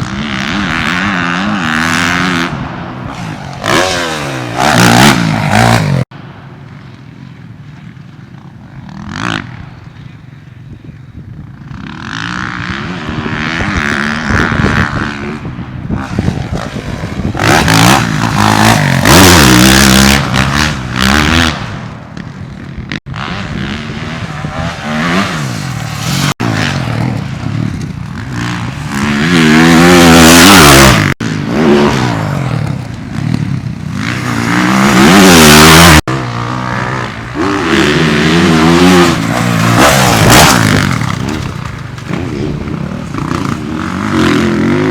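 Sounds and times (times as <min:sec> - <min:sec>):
dirt bike engine revving: 0:00.0 - 0:06.1, 0:11.7 - 0:21.8, 0:22.8 - 0:44.9
wind rushing over microphone: 0:10.6 - 0:44.9.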